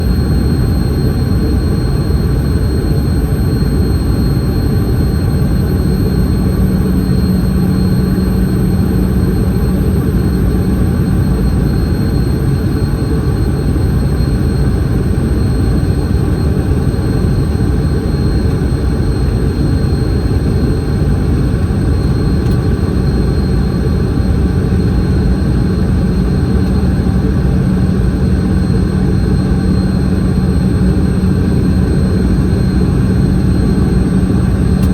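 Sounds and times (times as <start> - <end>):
high whine: 0.0 - 34.9
jet engine and airflow roar: 0.0 - 34.9.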